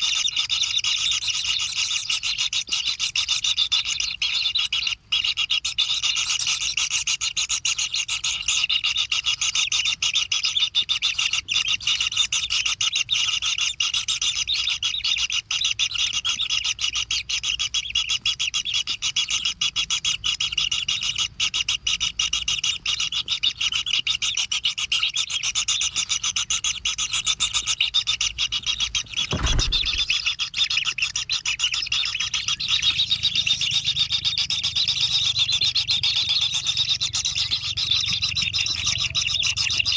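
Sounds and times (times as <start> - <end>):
nestlings begging calls: 0.0 - 39.9
low thump: 29.2 - 30.2.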